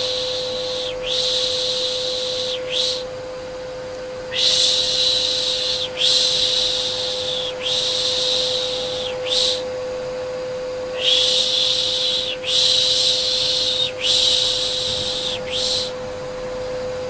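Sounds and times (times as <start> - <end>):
vacuum cleaner motor hum: 0.0 - 17.0
person shushing rhythmically: 11.0 - 15.9.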